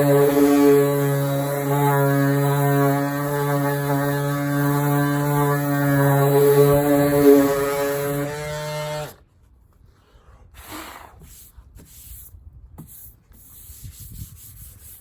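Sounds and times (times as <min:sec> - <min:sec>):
electric sander motor: 0:00.0 - 0:09.2.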